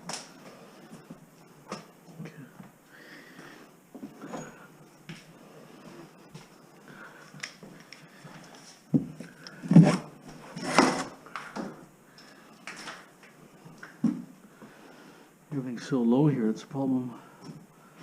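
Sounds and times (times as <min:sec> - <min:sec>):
thumps and scraping knocks: 0:08.9 - 0:11.7.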